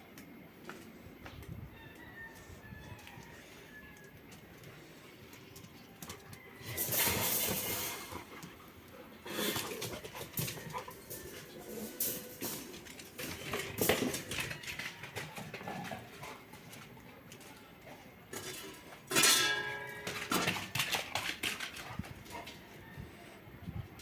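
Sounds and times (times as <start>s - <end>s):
clicks and clatters: 18.3s - 22.6s.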